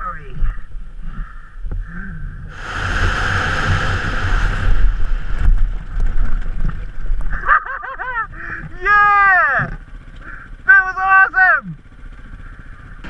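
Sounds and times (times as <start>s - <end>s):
dirt bike engine rumble: 0.0s - 13.0s
wind rushing over microphone: 0.4s - 7.5s
rider whooping shouts: 8.7s - 9.7s, 10.6s - 11.8s.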